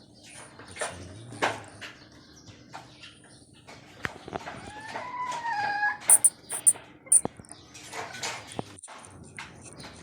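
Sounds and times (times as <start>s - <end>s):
high-pitched chirps: 6.1s - 7.2s.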